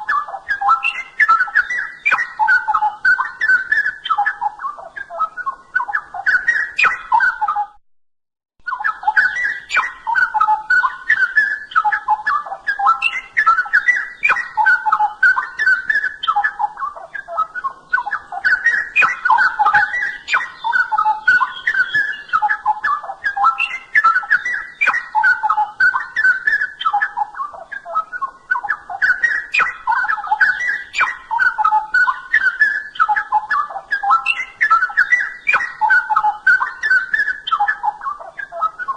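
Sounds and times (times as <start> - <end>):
bulbul singing: 0.0 - 7.8, 8.6 - 38.9.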